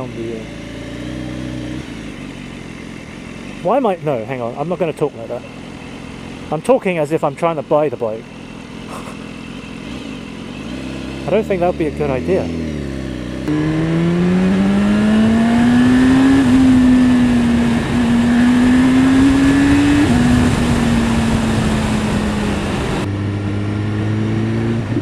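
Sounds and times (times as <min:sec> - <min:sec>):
motorcycle engine pulling under throttle: 0:00.0 - 0:25.0
wind rushing over microphone: 0:13.5 - 0:24.1.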